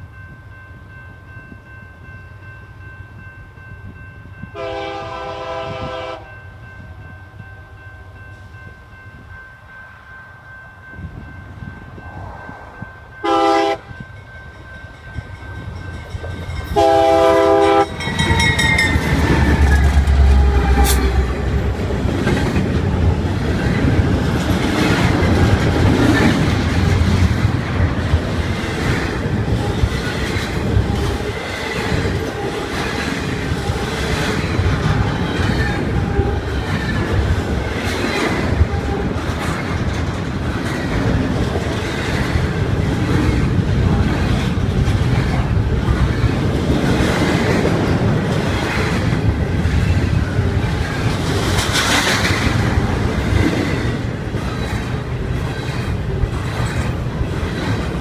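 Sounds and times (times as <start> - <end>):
deep locomotive engine rumble: 0.0 - 58.0
locomotive air horn blasts: 4.5 - 6.4, 13.2 - 13.9, 16.8 - 18.4, 20.1 - 21.6
wheels clattering on rail joints: 14.6 - 58.0.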